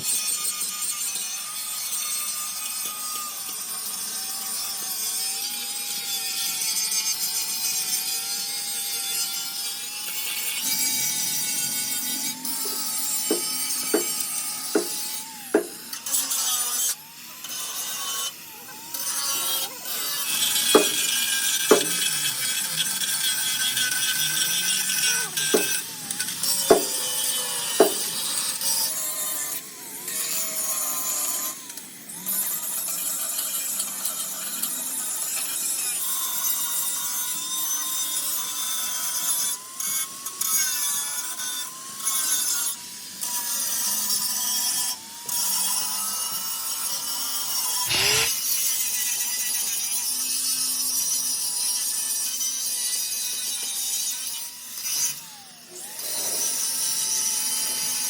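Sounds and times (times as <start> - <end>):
power tool grinding metal: 0.0 - 58.0
sharp knocks: 12.6 - 14.2, 14.8 - 15.0, 15.6 - 15.8, 20.8 - 21.0, 21.7 - 22.0, 26.7 - 27.0, 27.8 - 28.0.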